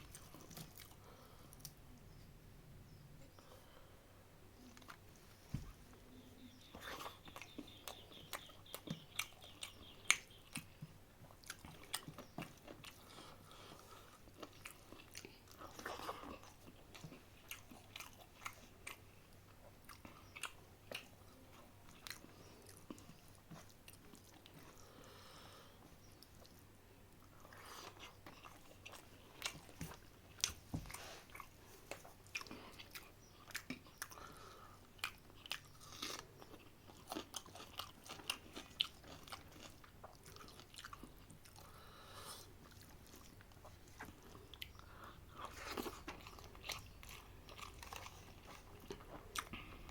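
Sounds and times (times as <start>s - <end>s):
person chewing food: 0.0s - 2.2s, 4.6s - 49.9s.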